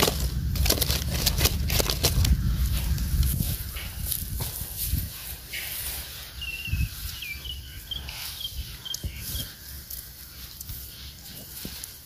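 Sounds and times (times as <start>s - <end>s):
small bird chirping: 5.5s - 11.6s.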